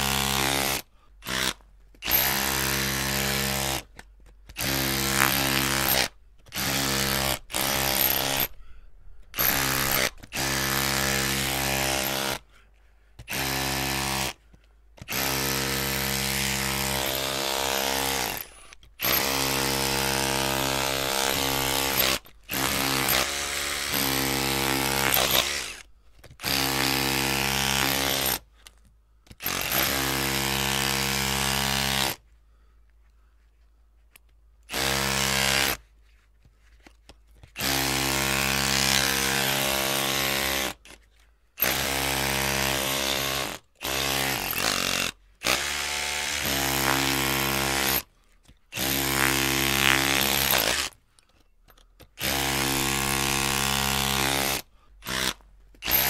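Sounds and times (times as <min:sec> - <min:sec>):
electric drill running: 0:19.0 - 0:25.8, 0:52.2 - 0:56.0.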